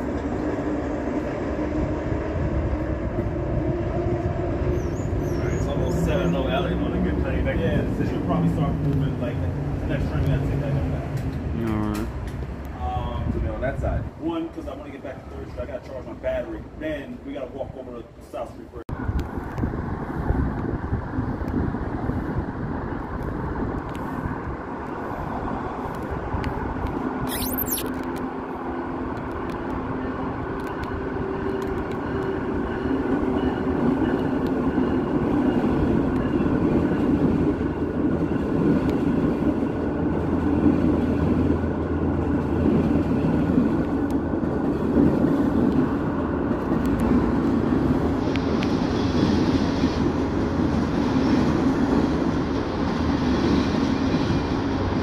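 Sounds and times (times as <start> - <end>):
train wheels rumbling on rails: 0.0 - 18.4, 28.4 - 55.0.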